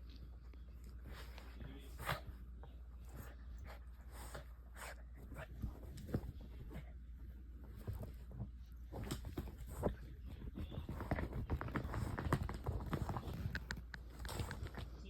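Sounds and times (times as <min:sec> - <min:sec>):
dog claws clicking on hard floor: 0:07.8 - 0:15.0.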